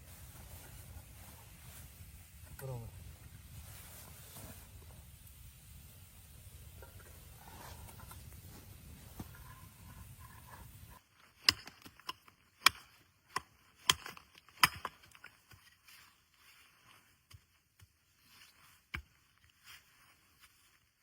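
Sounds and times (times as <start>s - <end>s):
axe chopping wood: 11.4s - 15.6s.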